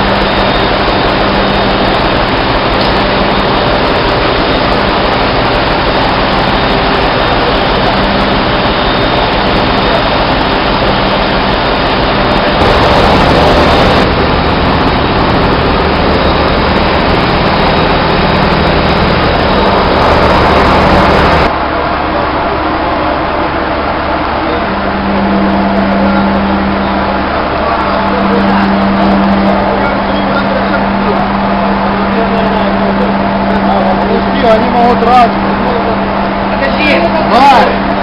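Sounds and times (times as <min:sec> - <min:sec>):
machinery running with low hum: 0:00.0 - 0:38.0.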